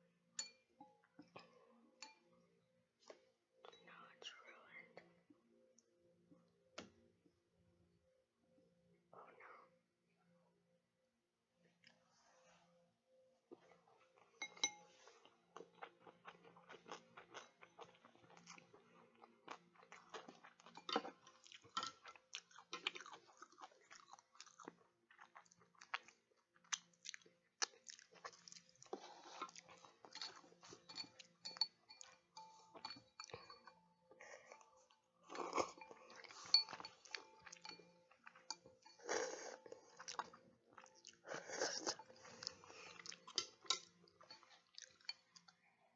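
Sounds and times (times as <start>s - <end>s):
chewing food: 13.5s - 45.9s.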